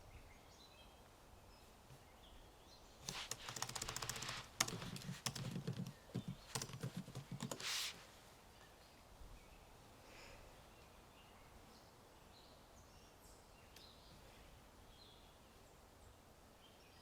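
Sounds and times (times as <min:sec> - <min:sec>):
brief rustle: 0:03.1 - 0:05.2, 0:07.5 - 0:08.1
keyboard key clicks: 0:03.1 - 0:07.6.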